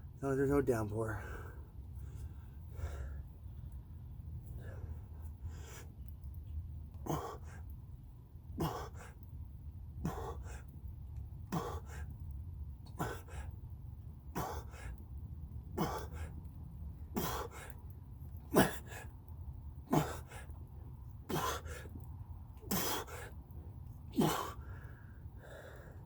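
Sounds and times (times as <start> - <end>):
man breathing hard: 1.1 - 3.8, 4.5 - 6.0, 7.0 - 7.8, 8.6 - 9.3, 10.0 - 10.8, 11.5 - 12.2, 12.9 - 13.7, 14.3 - 15.1, 15.8 - 16.4, 17.0 - 17.9, 18.5 - 19.2, 19.8 - 22.0, 22.6 - 23.4, 24.1 - 26.0.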